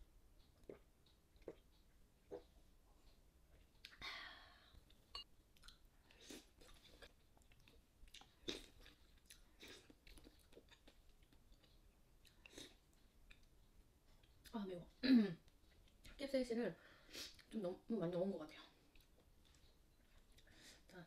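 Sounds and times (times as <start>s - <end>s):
chewing and mouth sounds: 0.4s - 4.0s, 5.6s - 13.6s, 18.8s - 20.5s.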